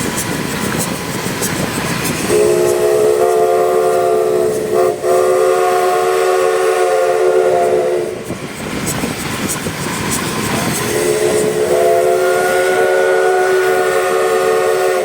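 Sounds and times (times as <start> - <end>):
train running: 0.0 - 15.0
steam locomotive chime whistle: 2.2 - 8.3, 10.8 - 15.0.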